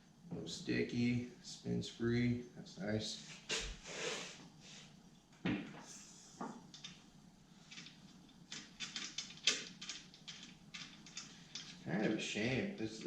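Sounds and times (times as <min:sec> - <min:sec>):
metal parts clicking and knocking: 0:07.7 - 0:11.9.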